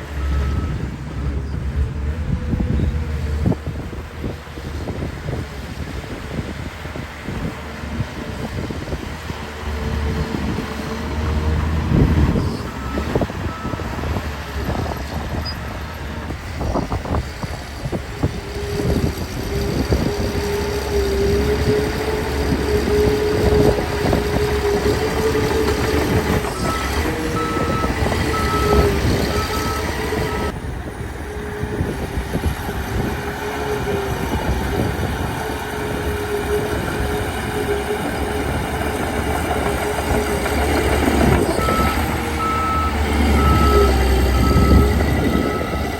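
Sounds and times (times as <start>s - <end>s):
diesel engine whining: 0.0s - 45.9s
reversing alarm beeping: 0.2s - 0.8s, 26.4s - 30.5s, 41.4s - 45.9s.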